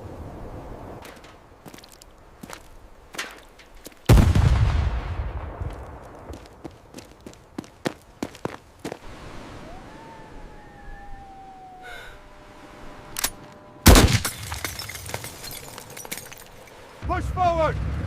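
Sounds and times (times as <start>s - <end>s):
loud explosion: 4.1s - 5.9s
thin whistle rising and falling: 9.2s - 13.2s
gunshots: 13.8s - 14.6s.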